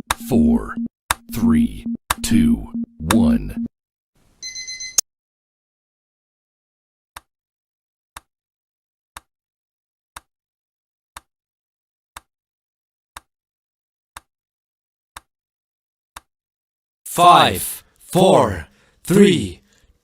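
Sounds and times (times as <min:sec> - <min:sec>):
sharp clock-like ticks: 0:00.0 - 0:03.7.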